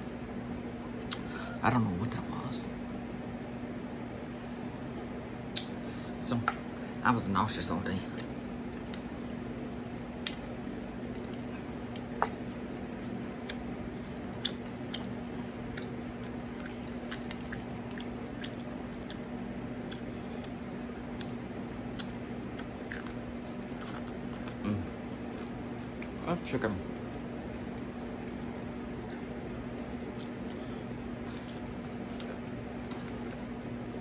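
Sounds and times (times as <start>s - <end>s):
person chewing crispy chicken: 8.1s - 26.2s, 27.5s - 33.7s.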